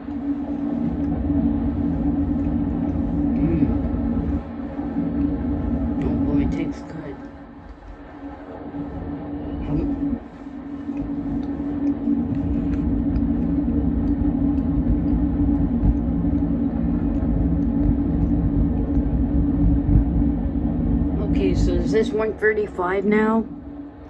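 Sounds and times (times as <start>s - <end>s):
steady low hum: 0.0s - 24.0s
freight train rumbling past: 21.0s - 23.5s.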